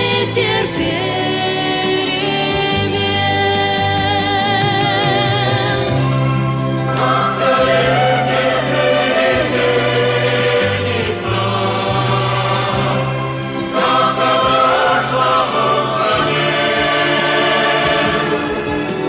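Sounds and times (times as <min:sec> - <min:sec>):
choir singing: 0:06.7 - 0:19.0.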